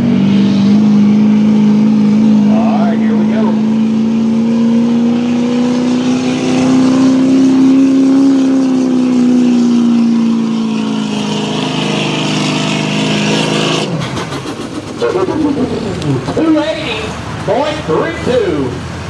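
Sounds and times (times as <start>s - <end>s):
diesel engine running at high revs: 0.0s - 19.0s.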